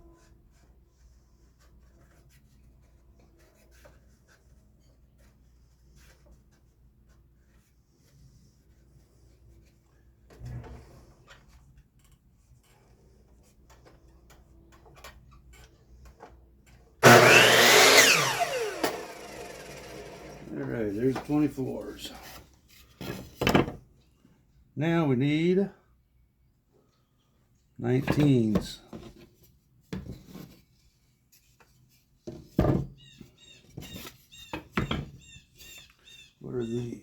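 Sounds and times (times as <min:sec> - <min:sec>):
power saw cutting wood: 0:17.0 - 0:22.1.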